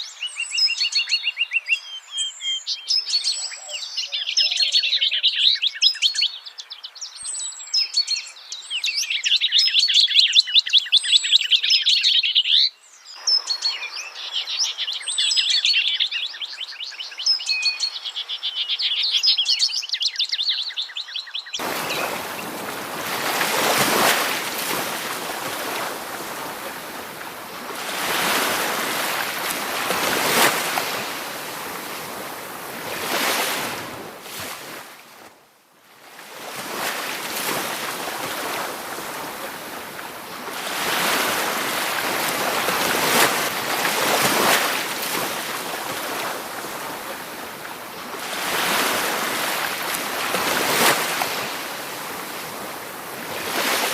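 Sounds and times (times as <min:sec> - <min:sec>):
songbirds chirping: 0:00.0 - 0:34.7
water rushing: 0:21.6 - 0:35.2, 0:36.2 - 0:53.9.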